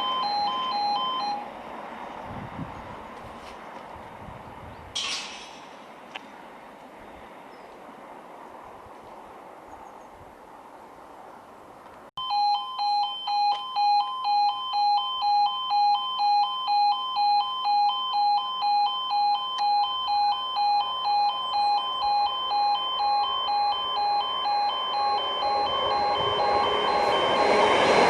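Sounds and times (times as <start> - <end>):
two-tone warning alarm: 0.0 - 1.5, 12.2 - 28.0
rumble: 21.9 - 28.0.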